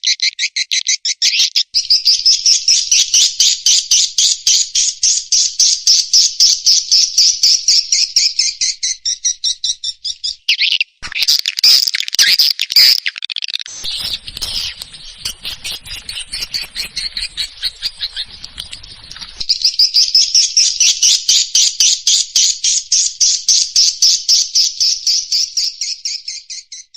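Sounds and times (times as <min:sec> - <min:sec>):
swiftlets chirping: 0:13.7 - 0:21.2.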